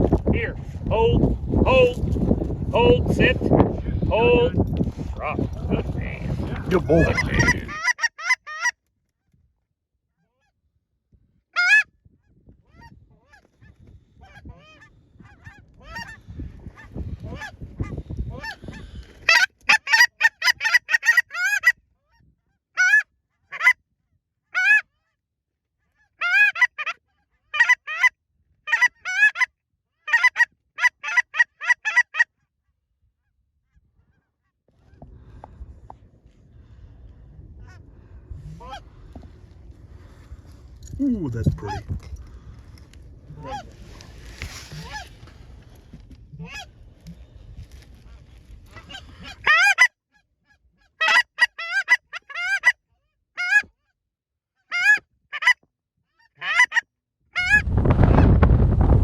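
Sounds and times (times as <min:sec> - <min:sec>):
goose honking and clucking: 0:05.4 - 0:08.7, 0:11.6 - 0:11.8, 0:16.8 - 0:21.7, 0:22.8 - 0:23.0, 0:24.6 - 0:24.8, 0:26.2 - 0:27.0, 0:28.7 - 0:29.5, 0:30.1 - 0:32.2, 0:44.7 - 0:45.2, 0:46.3 - 0:46.7, 0:48.7 - 0:49.9, 0:51.0 - 0:52.8, 0:53.4 - 0:53.7, 0:54.7 - 0:55.6, 0:56.4 - 0:56.8.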